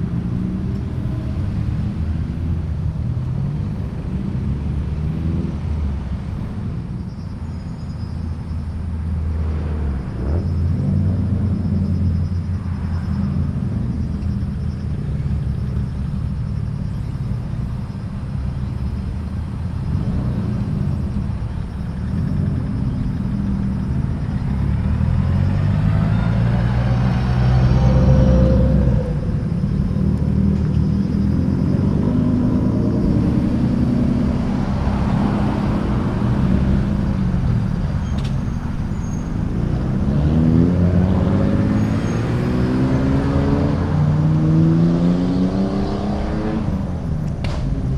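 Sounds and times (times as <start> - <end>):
low rumble of idling exhaust: 0.0 - 42.5
cars accelerating away: 0.0 - 47.9.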